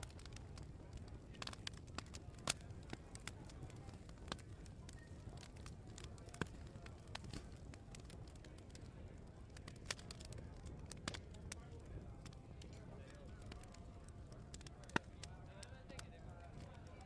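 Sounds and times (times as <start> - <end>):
low background murmur: 0.0 - 17.0
wood fire crackling and popping: 0.0 - 17.0.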